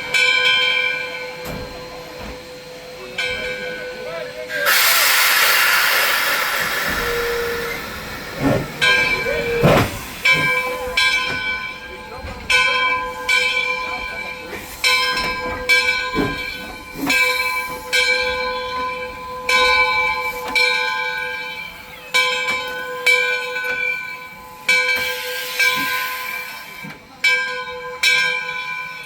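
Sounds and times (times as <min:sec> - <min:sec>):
locomotive bell ringing: 0:00.0 - 0:04.8, 0:06.8 - 0:29.0
steam hissing: 0:01.0 - 0:12.1, 0:24.5 - 0:27.0.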